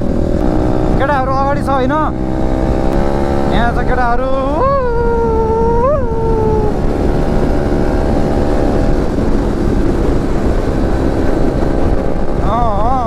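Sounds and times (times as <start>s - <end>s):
motorcycle engine rumble: 0.0s - 13.0s
wind on microphone: 0.0s - 13.0s
person howling: 4.3s - 7.0s.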